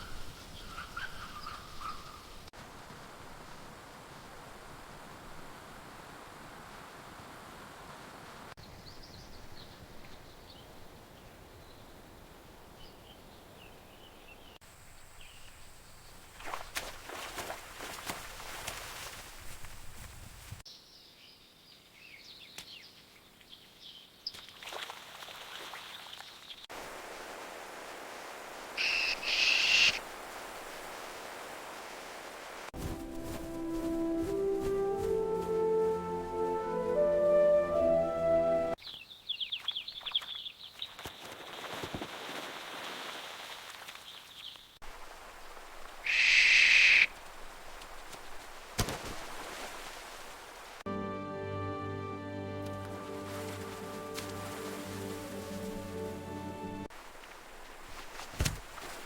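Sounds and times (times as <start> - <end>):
faint bird chirps and calls: 0.0 - 2.4, 28.8 - 30.0
loud harsh bird call: 28.8 - 30.0, 46.1 - 47.1.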